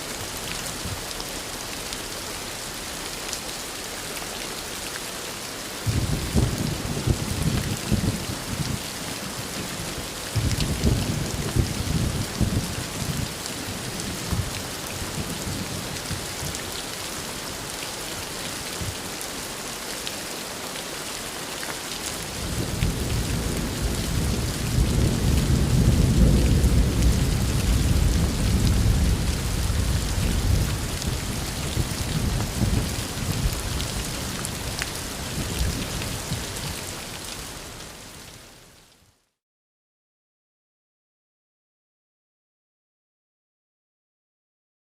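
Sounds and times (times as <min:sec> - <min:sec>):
heavy rain falling: 0:00.0 - 0:38.9
rolling thunder: 0:05.9 - 0:08.8, 0:10.4 - 0:13.3, 0:22.5 - 0:33.8.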